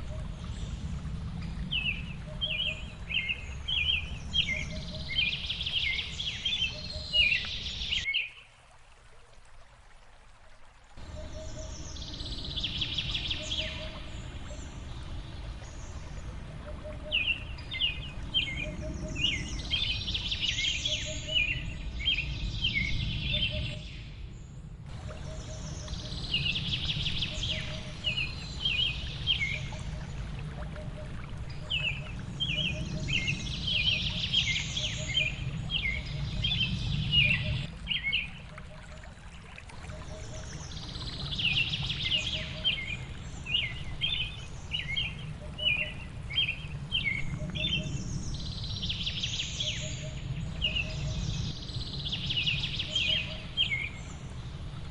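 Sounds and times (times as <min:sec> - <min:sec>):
falling water rushing: 0:24.9 - 0:49.4
small birds chirping and trilling: 0:31.5 - 0:38.4.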